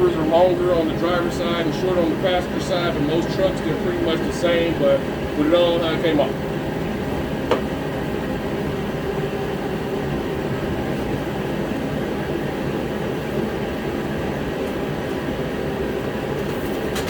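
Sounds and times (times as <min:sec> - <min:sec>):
heater drone: 0:00.0 - 0:17.0.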